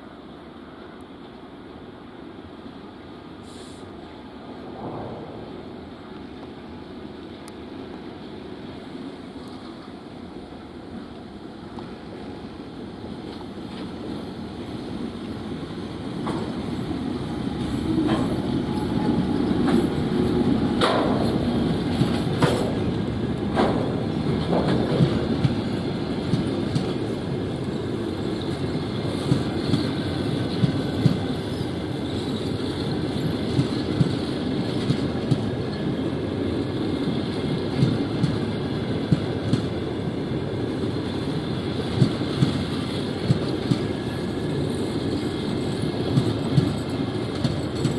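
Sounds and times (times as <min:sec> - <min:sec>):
train rolling past rumble: 0:00.0 - 0:47.9
wheels clacking over rail joints: 0:17.5 - 0:27.2.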